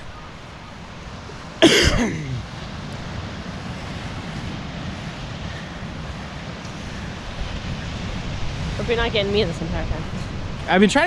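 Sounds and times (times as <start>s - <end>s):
ocean surf: 0.0s - 11.0s
wind buffeting microphone: 0.0s - 11.0s.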